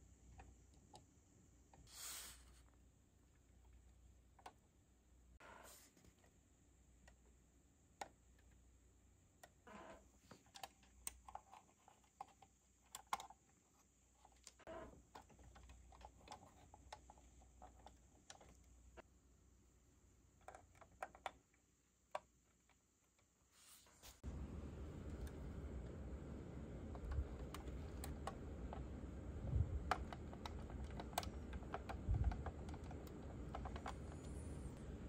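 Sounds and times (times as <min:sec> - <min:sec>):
plastic parts clicking: 0:10.3 - 0:18.8, 0:20.4 - 0:23.3, 0:26.8 - 0:35.0.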